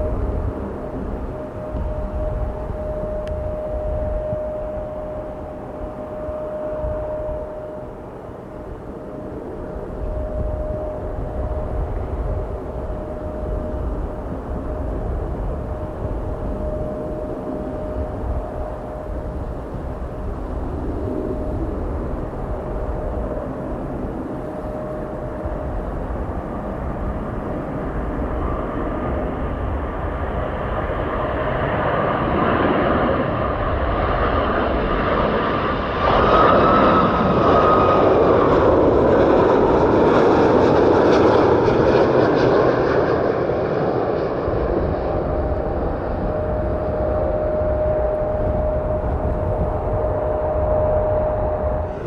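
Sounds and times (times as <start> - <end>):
airplane engines passing: 0.0 - 52.0
high engine whine: 0.0 - 52.0.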